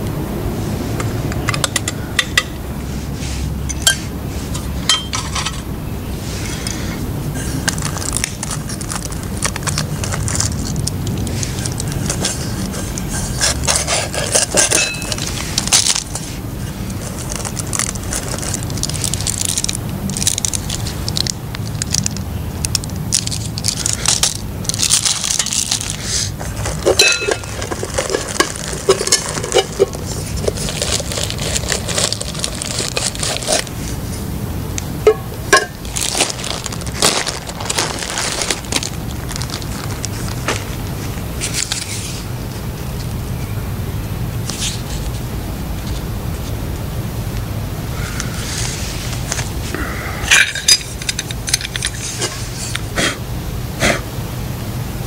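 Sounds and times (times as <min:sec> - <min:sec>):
metal kettle and stove clinking: 0:04.8 - 0:05.7, 0:14.3 - 0:15.2, 0:26.8 - 0:30.0, 0:35.0 - 0:35.8, 0:50.3 - 0:52.0.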